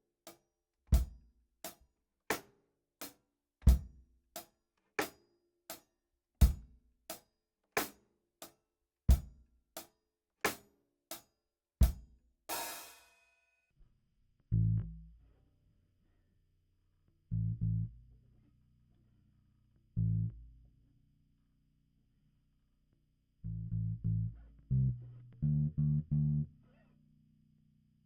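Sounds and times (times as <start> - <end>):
electric bass guitar note: 23.5 - 26.9.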